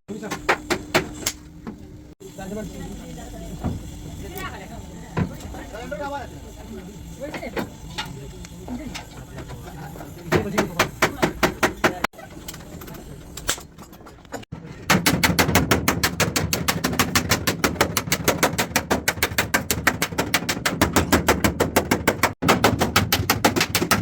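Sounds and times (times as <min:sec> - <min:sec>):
rapid hammering: 0:10.3 - 0:12.1, 0:14.9 - 0:24.0.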